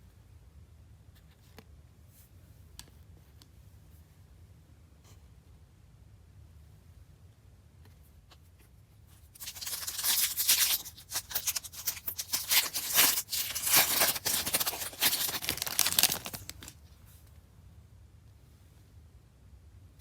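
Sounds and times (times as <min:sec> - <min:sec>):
foil wrapper crinkling and tearing: 0:09.4 - 0:16.8.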